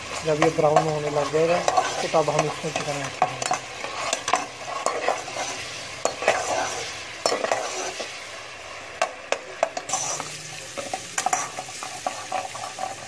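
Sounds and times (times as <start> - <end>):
spatula scraping a metal pot: 0.0 - 8.1, 9.7 - 13.0
paste sizzling in hot oil: 0.0 - 13.0.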